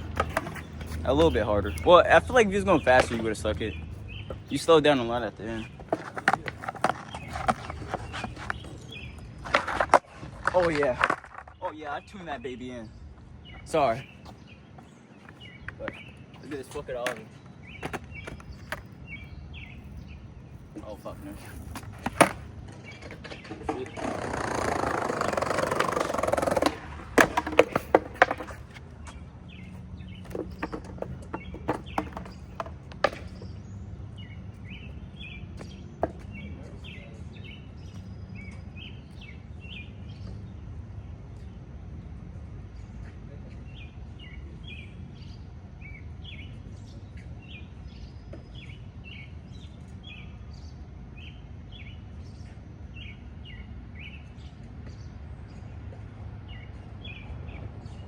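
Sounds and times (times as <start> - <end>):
skateboard clattering: 0.0 - 1.8, 5.6 - 11.7, 15.3 - 19.0, 21.3 - 29.2, 30.1 - 33.6
skateboard wheels rolling on pavement: 0.0 - 42.8
small birds chirping: 0.0 - 58.0.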